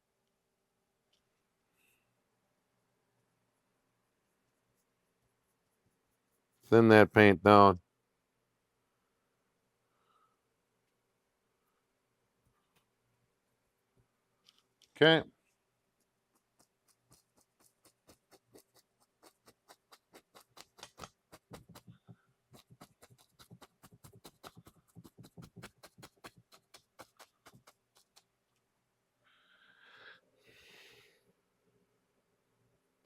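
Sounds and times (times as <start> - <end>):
rapid faint clicking taps: 16.4 - 28.3
short breathy noise: 29.2 - 31.3.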